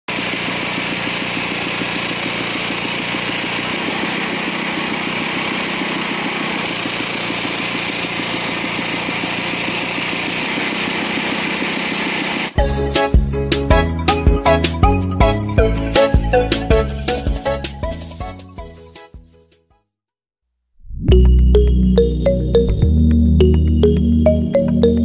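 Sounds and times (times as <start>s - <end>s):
drilling rig engine running: 0.1s - 18.4s
music: 12.6s - 19.9s, 21.0s - 25.0s.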